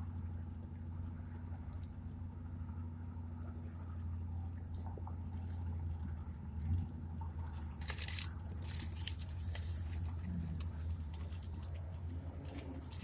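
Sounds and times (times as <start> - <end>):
steady low hum: 0.0 - 13.0
food bitten and chewed: 7.5 - 13.0
paper wrapper crinkling: 7.6 - 13.0.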